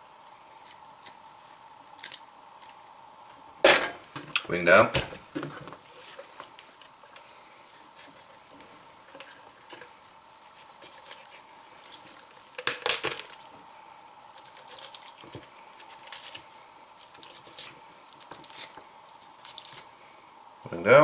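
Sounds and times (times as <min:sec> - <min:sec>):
faint steady hum: 0:00.0 - 0:21.0
wet squishing and crackling snips: 0:01.9 - 0:02.8, 0:08.0 - 0:13.6, 0:14.3 - 0:20.0.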